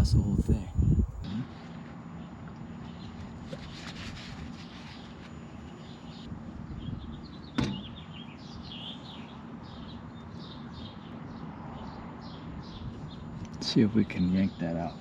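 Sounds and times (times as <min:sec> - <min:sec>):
low background hum: 0:00.0 - 0:15.0
small birds chirping: 0:05.8 - 0:15.0.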